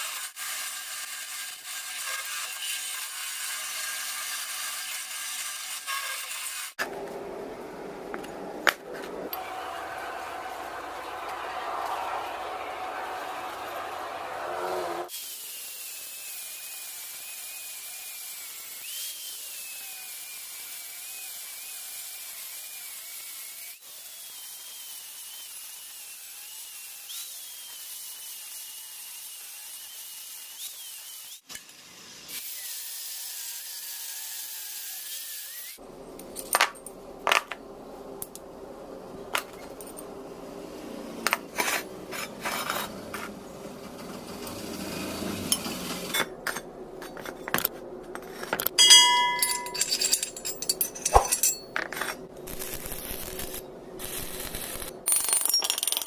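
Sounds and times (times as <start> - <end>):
metal clinks and taps: 48.7 - 52.2.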